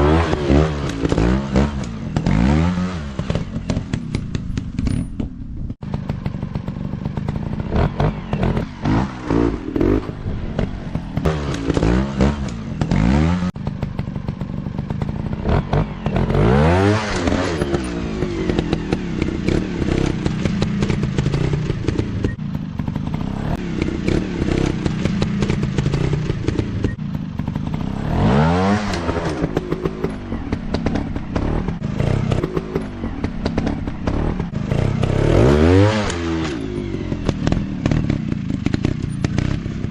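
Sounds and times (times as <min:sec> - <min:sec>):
dirt bike engines revving: 0:00.0 - 0:04.8, 0:05.8 - 0:39.9.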